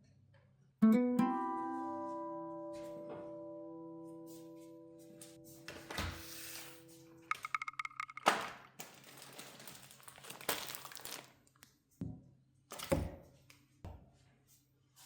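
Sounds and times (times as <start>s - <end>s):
crinkling with a crack: 8.2s - 11.9s.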